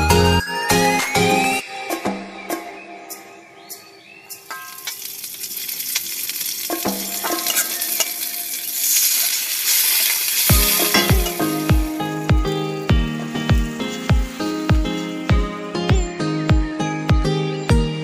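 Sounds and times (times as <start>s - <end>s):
oil sizzling in a wok: 4.4s - 15.7s
metal spatula scraping and clinking: 7.0s - 12.0s, 13.2s - 15.3s
music with thudding beat: 10.5s - 18.0s.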